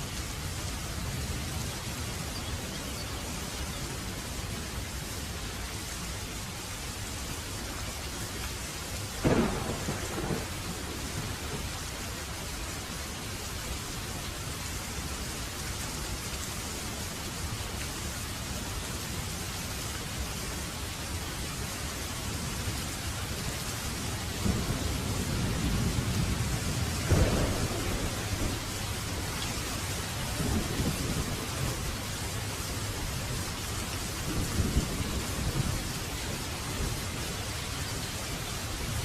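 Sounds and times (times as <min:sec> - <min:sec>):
heavy rain falling: 0:00.0 - 0:39.0
thunderclap: 0:09.2 - 0:11.7, 0:24.4 - 0:29.2
thunder rumbling: 0:09.2 - 0:12.0, 0:24.3 - 0:39.0.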